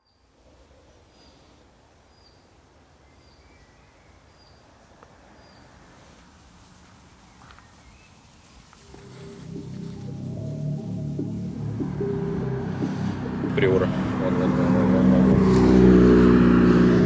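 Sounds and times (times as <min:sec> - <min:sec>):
steady background hiss: 0:00.1 - 0:13.6.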